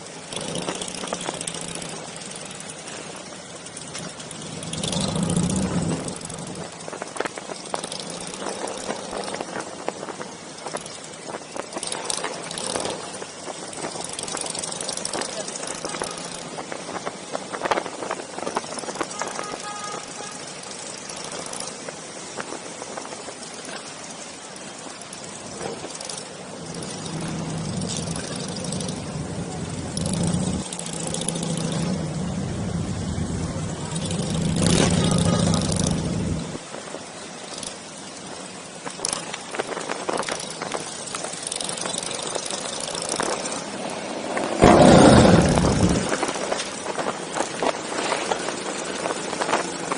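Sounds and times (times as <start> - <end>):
motorcycle engines running: 0.0 - 49.9
loud engine burst: 44.6 - 46.2.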